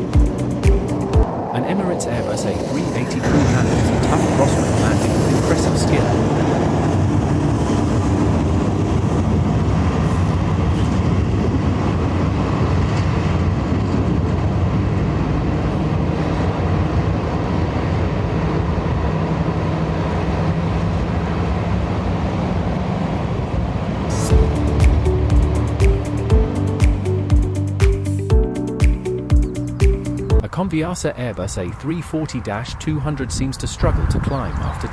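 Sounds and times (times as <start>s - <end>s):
jet airliner engines rumbling: 0.0s - 28.4s, 29.1s - 34.9s.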